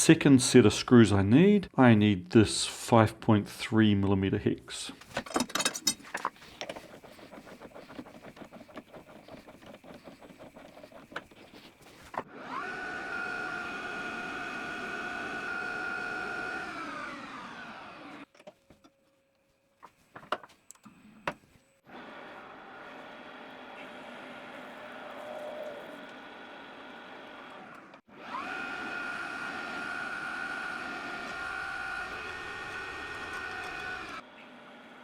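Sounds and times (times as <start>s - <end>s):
machine tool motor whining: 5.0s - 18.9s, 19.8s - 34.6s
crackly scraping and cutting: 5.0s - 21.0s, 29.5s - 34.2s.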